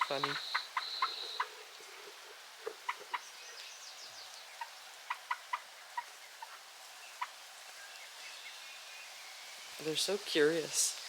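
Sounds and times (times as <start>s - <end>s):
chickens clucking: 0.0s - 3.2s.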